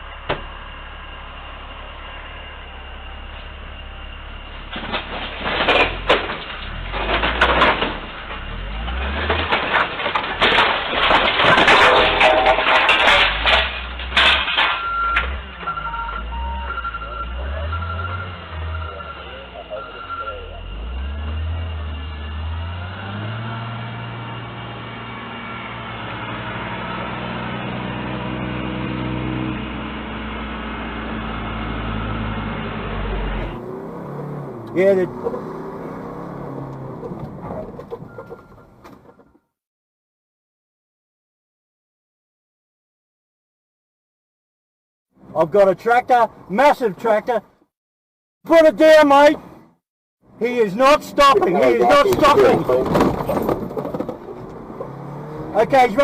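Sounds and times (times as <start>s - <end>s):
vehicle engine running: 0.0s - 5.5s
road noise: 0.0s - 39.5s, 45.1s - 47.7s, 48.4s - 56.0s
vehicle rumble: 0.0s - 39.5s, 48.5s - 56.0s
car crash impacts crunching: 3.2s - 21.5s, 50.4s - 56.0s.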